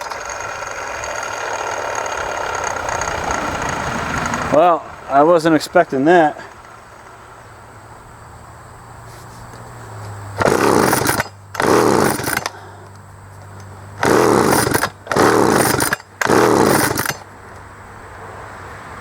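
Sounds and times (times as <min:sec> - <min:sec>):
chainsaw engine firing in bursts: 0:00.0 - 0:04.5, 0:10.4 - 0:12.8, 0:14.0 - 0:17.3.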